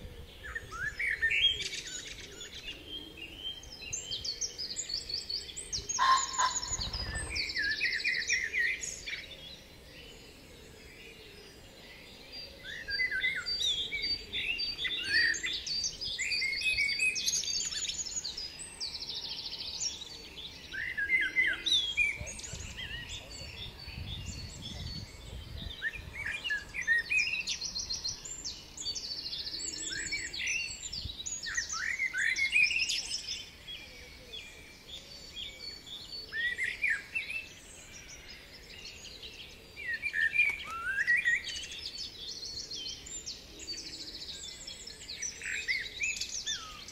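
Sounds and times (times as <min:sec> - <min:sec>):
songbirds chirping and singing: 0:00.0 - 0:46.9.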